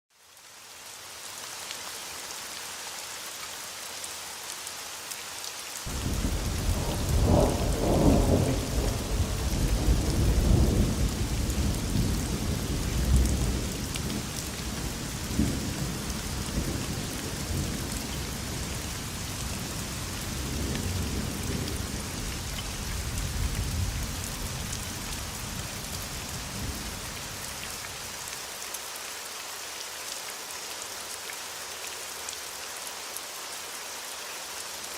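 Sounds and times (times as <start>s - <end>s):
steady rain falling: 0.1s - 34.9s
thunder rolling: 5.9s - 13.5s.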